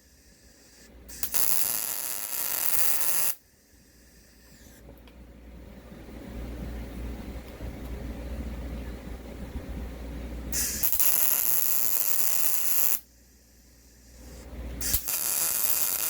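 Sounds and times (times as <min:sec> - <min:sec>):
welding arc crackling and hissing: 0:00.0 - 0:04.8, 0:10.5 - 0:16.0.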